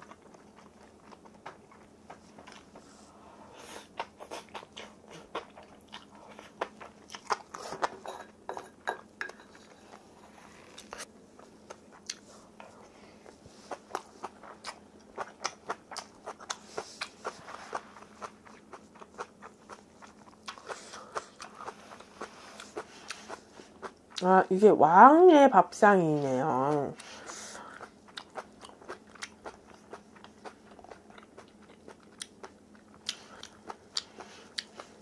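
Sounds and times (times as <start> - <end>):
crunchy chewing: 0.0 - 3.0, 3.6 - 8.0, 9.9 - 24.2, 27.0 - 35.0.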